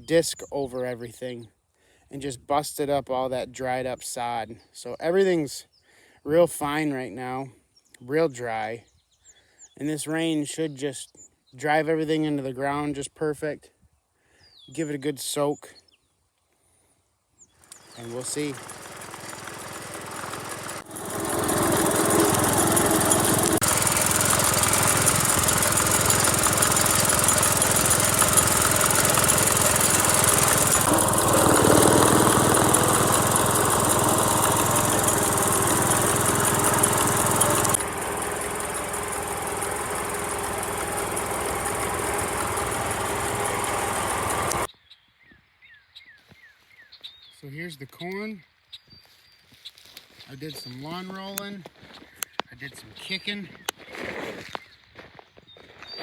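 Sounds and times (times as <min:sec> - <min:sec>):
small engine running with rattle: 0:17.6 - 0:44.7.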